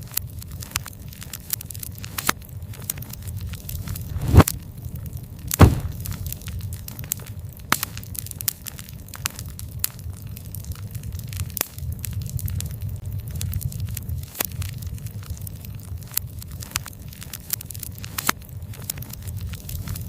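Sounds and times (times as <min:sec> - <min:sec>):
campfire crackling and popping: 0:00.0 - 0:20.0
low rumble: 0:03.9 - 0:04.5, 0:05.6 - 0:06.1.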